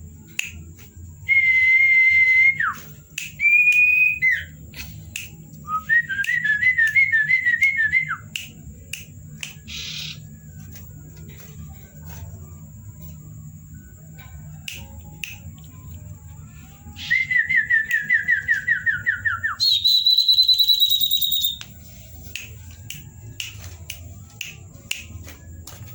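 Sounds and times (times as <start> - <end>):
bird whistling song: 3.4 - 4.6, 9.6 - 10.2, 16.9 - 21.7.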